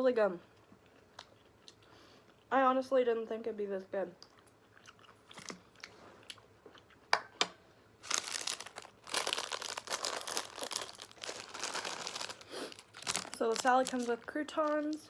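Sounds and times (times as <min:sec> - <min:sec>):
chewing: 0:04.2 - 0:07.0
crackly crunching: 0:08.0 - 0:15.0.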